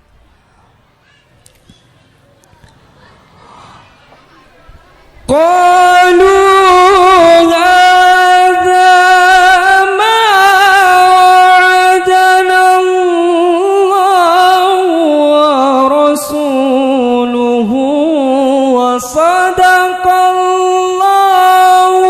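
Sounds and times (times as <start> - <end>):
man reciting melodically: 5.3 - 22.0.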